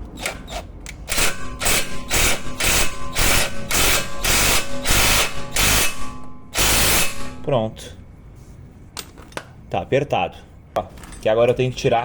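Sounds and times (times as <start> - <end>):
power tool bursts: 1.1 - 7.4.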